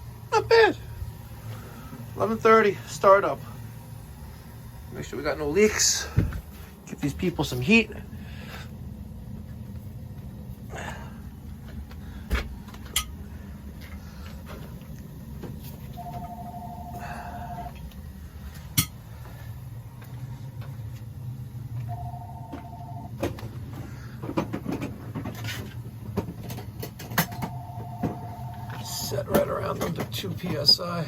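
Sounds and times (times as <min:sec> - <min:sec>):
boiler burner humming: 0:00.0 - 0:31.0
two-tone electronic beep: 0:16.0 - 0:17.7, 0:21.9 - 0:23.1, 0:27.2 - 0:29.1.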